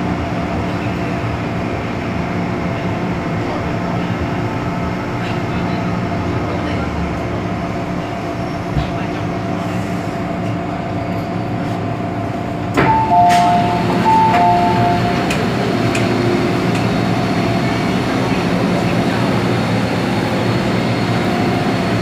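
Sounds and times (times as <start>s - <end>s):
train electrical hum: 0.0s - 22.0s
two-note door chime: 12.8s - 15.3s.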